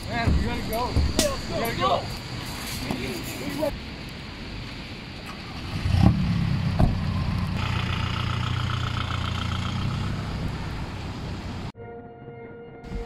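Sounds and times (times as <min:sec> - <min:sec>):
car engine starting and idling: 0:05.2 - 0:11.7.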